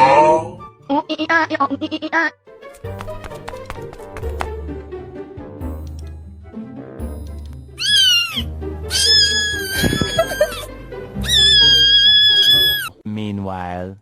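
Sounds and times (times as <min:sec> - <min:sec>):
cat meowing: 0:07.8 - 0:13.0.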